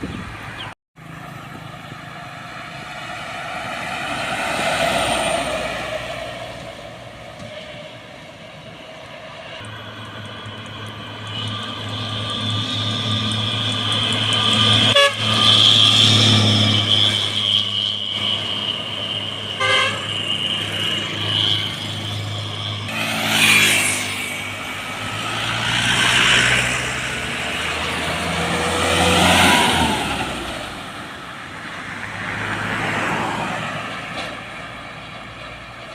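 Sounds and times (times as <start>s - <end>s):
vehicles passing: 0.0s - 35.9s
heavy vehicle engine running low: 5.0s - 23.6s
long steady horn tone: 13.5s - 21.8s.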